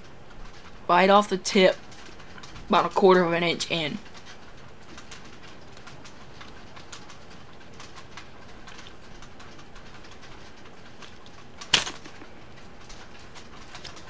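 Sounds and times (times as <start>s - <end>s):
paper snapping: 11.7s - 12.1s.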